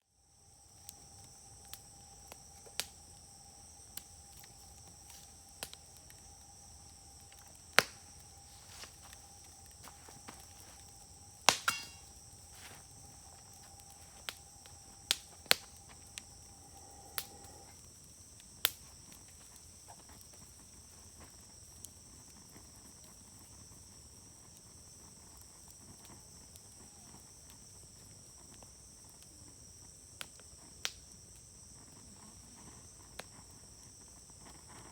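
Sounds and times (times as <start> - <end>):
insects chirping: 0.0 - 34.9
wood fire crackling: 0.1 - 34.9
wood popping: 3.9 - 16.5.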